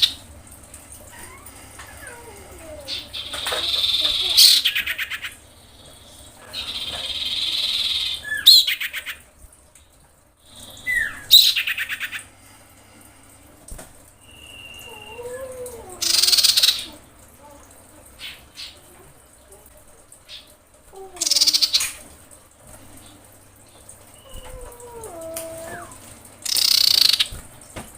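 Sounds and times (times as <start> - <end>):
bird buzzy chattering calls: 1.2 - 9.2, 26.4 - 27.4
bird whistled notes: 14.2 - 15.1.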